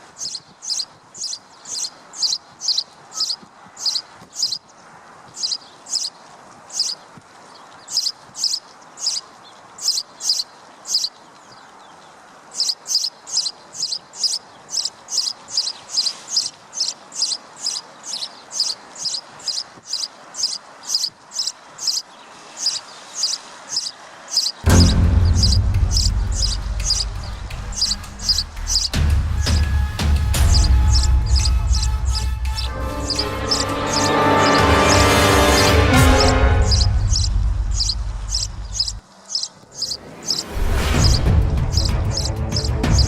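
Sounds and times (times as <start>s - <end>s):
high-pitched chirp: 24.7s - 29.6s, 30.4s - 43.0s.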